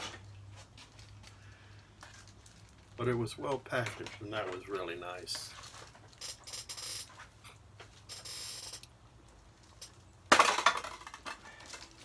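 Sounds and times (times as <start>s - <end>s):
loud clatter of parts: 9.6s - 12.0s.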